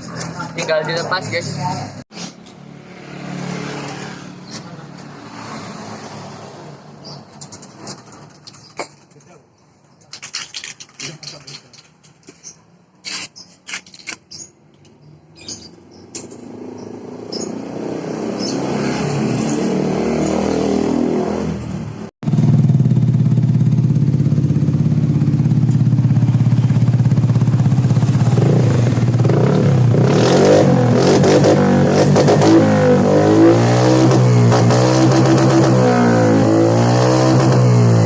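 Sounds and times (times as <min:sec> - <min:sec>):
scooter engine running: 0:22.3 - 0:29.9.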